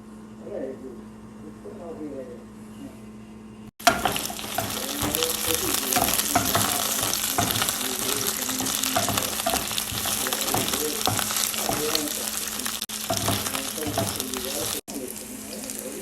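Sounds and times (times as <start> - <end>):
food sizzling in a pan: 3.8 - 16.0.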